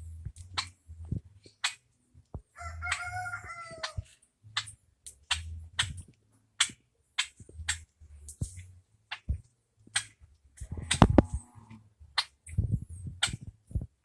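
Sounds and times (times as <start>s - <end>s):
sharp clicks and taps: 3.8s - 11.5s, 12.2s - 14.0s.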